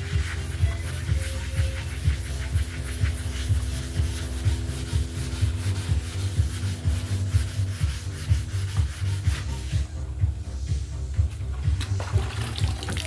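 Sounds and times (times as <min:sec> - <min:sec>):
wet sanding strokes: 0:00.0 - 0:09.9
music with bass beat: 0:00.0 - 0:13.0.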